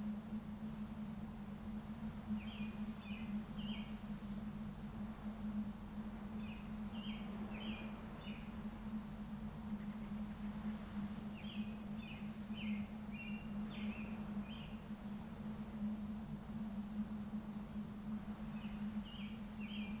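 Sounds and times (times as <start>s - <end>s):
faint outdoor background noise: 0.0s - 20.0s
steady low hum: 0.0s - 20.0s
small songbird singing: 2.1s - 4.5s, 6.4s - 8.6s, 11.3s - 15.4s, 17.3s - 20.0s.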